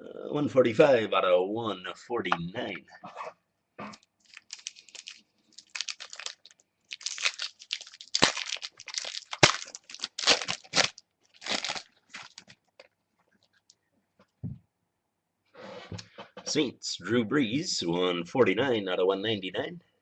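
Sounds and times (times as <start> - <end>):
sharp wrapper snaps: 3.9 - 12.9
card pack wrapper crinkling and tearing: 4.2 - 12.9.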